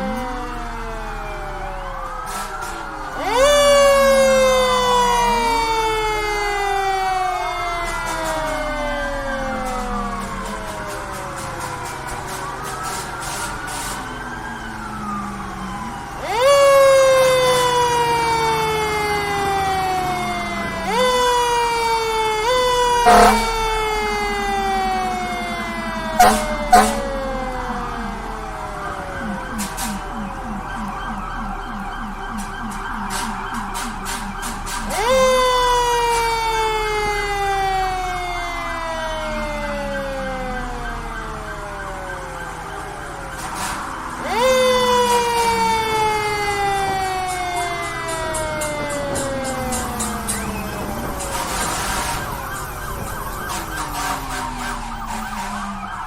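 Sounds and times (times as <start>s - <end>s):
fainter siren falling: 0.0s - 56.0s
fire truck siren winding: 0.0s - 56.0s
loud horn blast: 22.9s - 23.9s, 26.1s - 27.2s, 51.0s - 52.5s, 53.5s - 56.0s.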